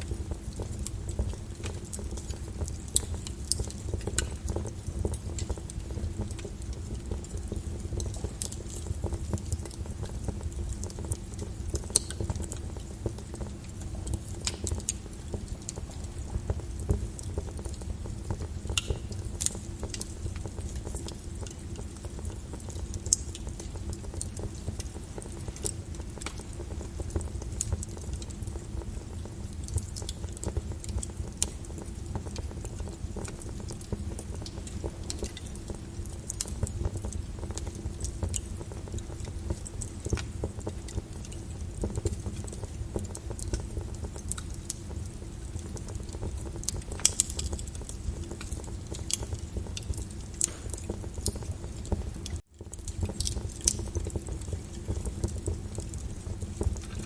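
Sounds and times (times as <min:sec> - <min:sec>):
wood fire crackling and popping: 0:00.0 - 0:57.0
rain hissing: 0:50.5 - 0:52.2.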